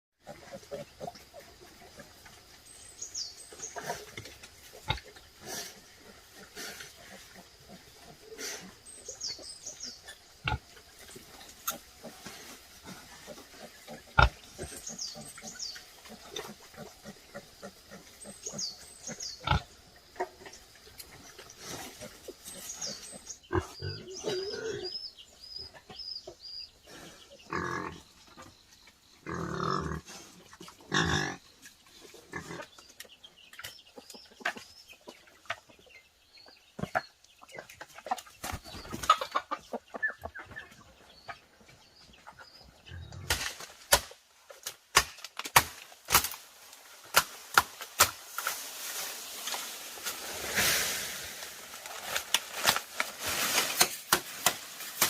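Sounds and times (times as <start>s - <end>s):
pigs grunting: 11.6s - 20.4s, 21.6s - 25.0s, 26.9s - 28.4s, 29.2s - 31.5s, 32.2s - 32.7s.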